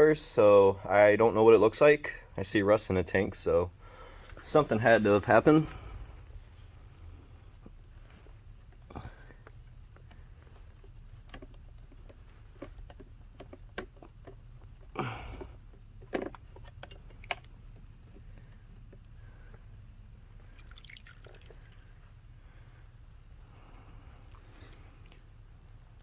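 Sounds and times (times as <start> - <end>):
water dripping and splashing: 20.5 - 21.8
water sloshing: 20.5 - 21.8.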